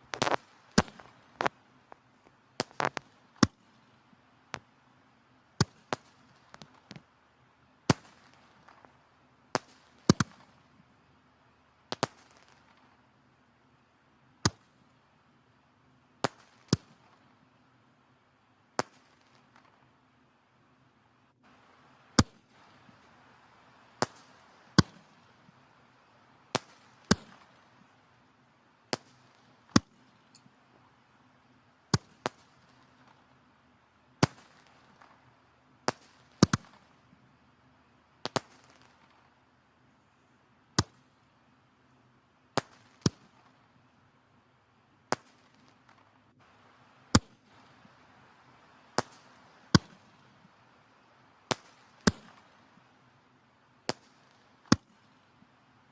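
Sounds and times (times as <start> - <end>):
wood fire crackling: 0.0 - 4.8, 21.3 - 37.4.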